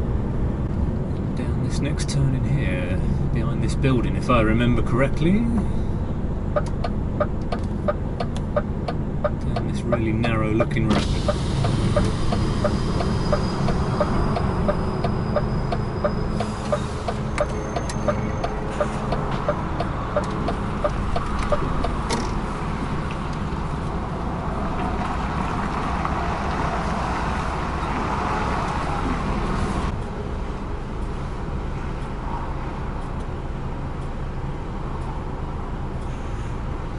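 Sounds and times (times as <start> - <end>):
road and tyre noise: 0.0 - 36.9
truck engine running: 4.8 - 24.4
turn indicator ticking: 6.5 - 23.4, 30.9 - 32.2, 32.8 - 36.1.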